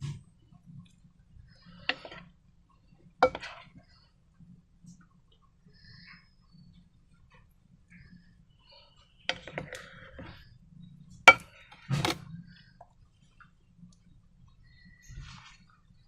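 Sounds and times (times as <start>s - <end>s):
hard objects clicking and knocking: 11.3s - 12.2s.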